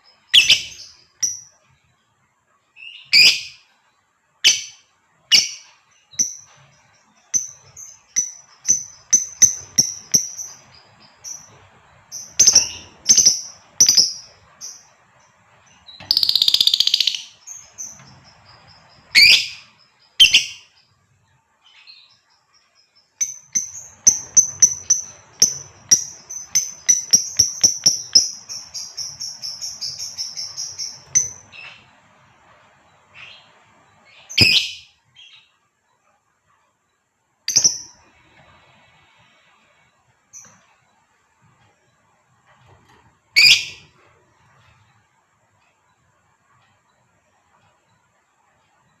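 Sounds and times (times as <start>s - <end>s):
lovebird chirping and chattering: 0.1s - 1.5s, 2.8s - 3.6s, 4.4s - 20.8s, 23.1s - 32.0s, 33.2s - 35.5s, 37.5s - 38.0s, 43.4s - 43.9s.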